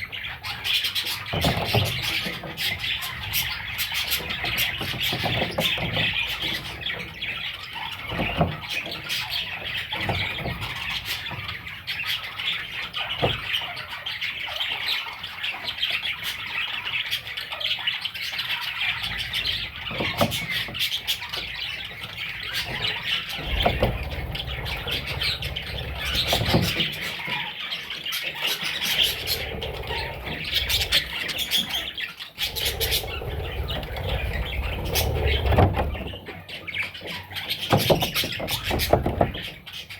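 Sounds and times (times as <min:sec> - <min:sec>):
chicks chirping and squawking: 0:00.0 - 0:39.9
low bumps: 0:22.6 - 0:27.1, 0:28.8 - 0:36.4.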